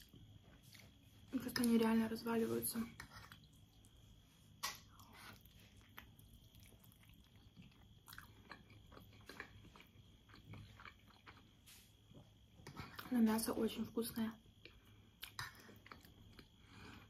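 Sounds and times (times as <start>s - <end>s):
chewing and wet mouth smacks: 3.0s - 4.0s, 4.6s - 11.5s, 14.6s - 16.5s.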